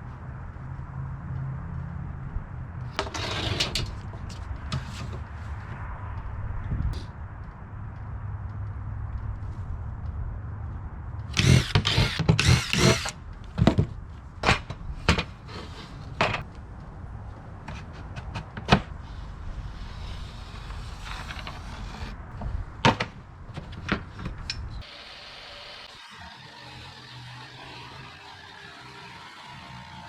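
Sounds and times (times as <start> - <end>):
power tool humming: 11.4 - 13.1, 24.8 - 30.0
loud rasping burst: 11.4 - 13.2, 24.8 - 30.0.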